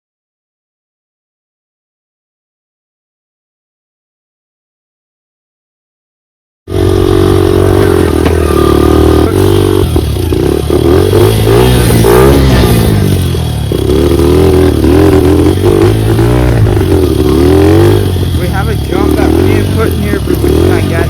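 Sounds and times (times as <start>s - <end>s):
dirt bike engine revving: 6.7s - 21.0s.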